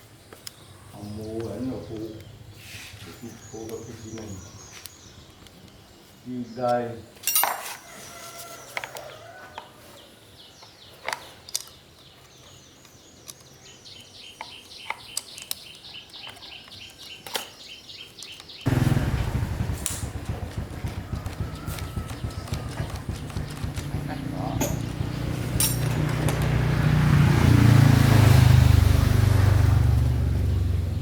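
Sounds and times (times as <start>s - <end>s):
bird chirping: 0.0s - 7.1s, 9.0s - 28.5s
lawn mower engine running: 18.7s - 31.0s.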